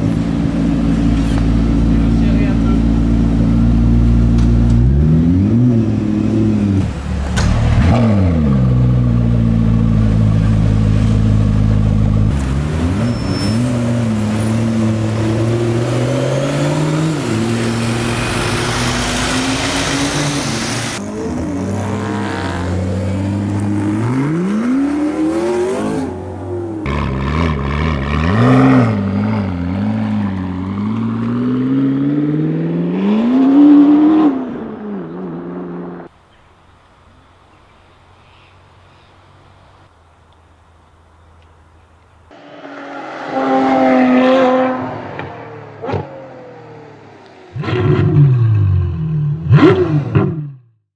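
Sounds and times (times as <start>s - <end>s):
car engine revving and accelerating: 0.0s - 36.1s, 42.3s - 50.6s.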